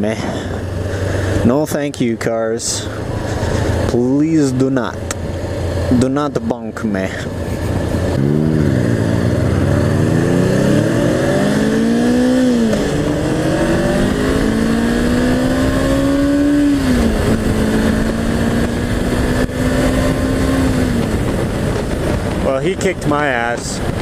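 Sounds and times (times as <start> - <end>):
motorcycle engine accelerating hard: 0.0 - 24.0
wind rush: 7.2 - 24.0.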